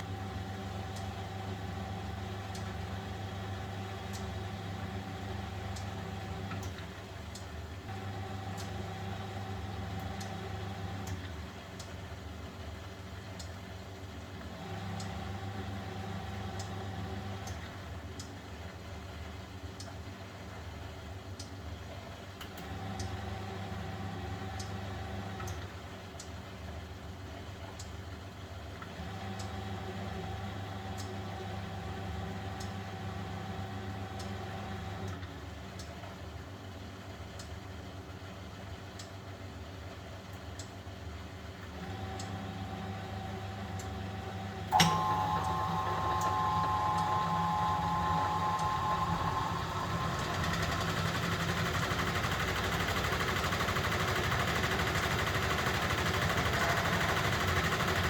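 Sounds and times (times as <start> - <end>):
washing machine drum motor: 0.0 - 13.6, 14.3 - 18.3, 22.5 - 26.9, 28.8 - 35.9, 41.5 - 58.0.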